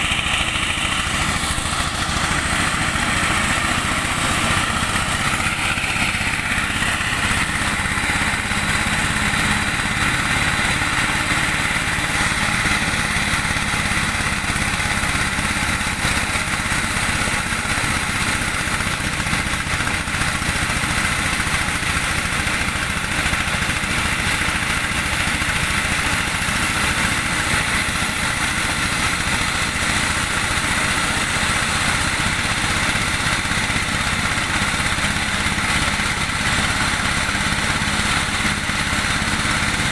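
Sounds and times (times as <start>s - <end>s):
corn sheller running: 0.0s - 39.9s.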